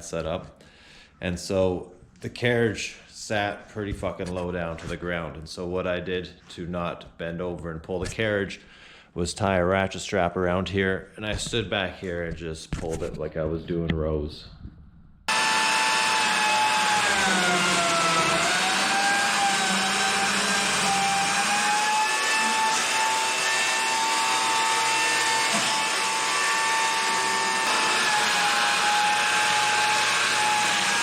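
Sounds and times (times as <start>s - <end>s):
chainsaw cutting a log: 15.3s - 31.0s.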